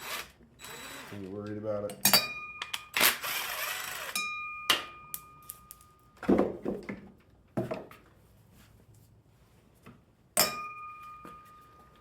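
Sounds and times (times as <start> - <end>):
metallic ring: 2.0 - 2.9, 4.2 - 6.2, 10.4 - 12.0.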